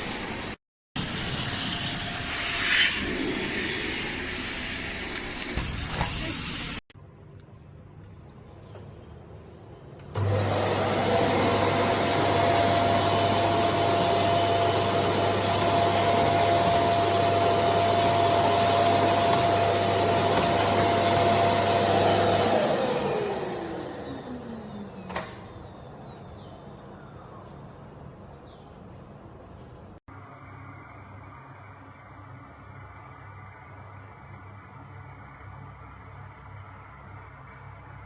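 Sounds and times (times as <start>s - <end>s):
vacuum cleaner running: 0.0s - 6.8s, 10.1s - 25.5s.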